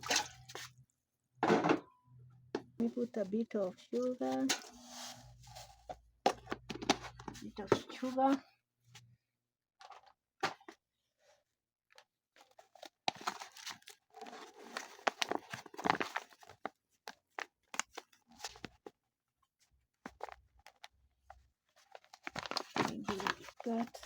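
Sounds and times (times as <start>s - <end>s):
packet crinkling: 13.2s - 16.6s, 21.9s - 24.0s.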